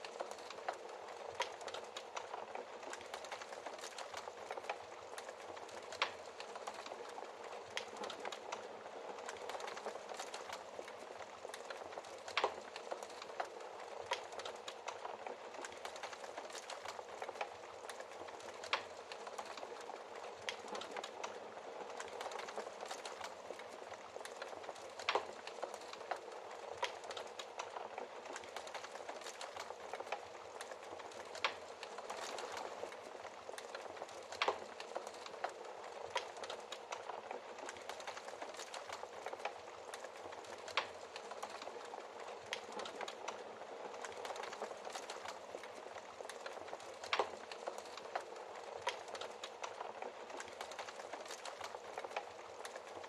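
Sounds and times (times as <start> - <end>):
wood fire crackling and popping: 0.0 - 53.0.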